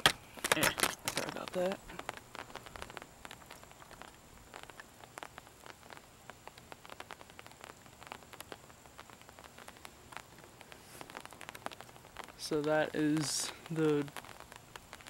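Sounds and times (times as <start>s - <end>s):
faint rain hiss: 0.0s - 15.0s
raindrops ticking on surface: 0.0s - 15.0s.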